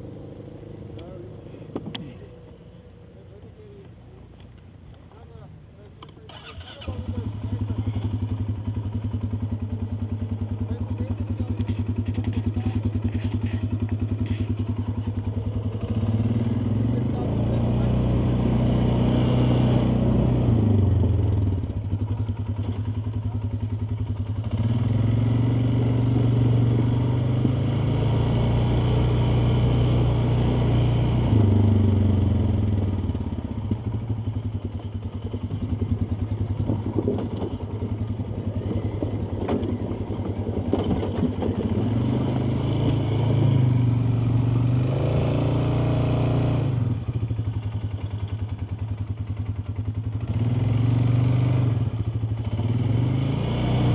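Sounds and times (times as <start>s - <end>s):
atv engine revving: 6.0s - 53.9s.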